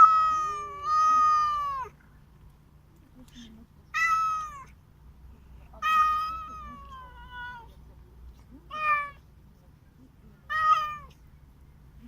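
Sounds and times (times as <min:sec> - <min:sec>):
cat meowing: 0:00.0 - 0:01.9, 0:03.9 - 0:04.8, 0:05.8 - 0:07.7, 0:08.7 - 0:09.2, 0:10.5 - 0:11.2.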